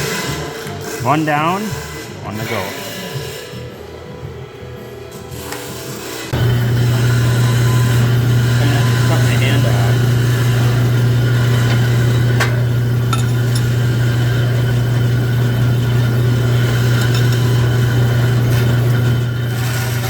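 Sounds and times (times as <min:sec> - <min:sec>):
drill press motor hum: 0:05.4 - 0:20.0.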